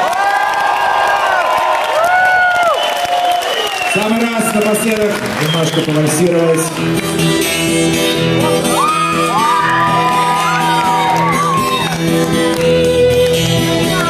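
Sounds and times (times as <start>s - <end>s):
rock band playing waltz: 6.8s - 14.0s.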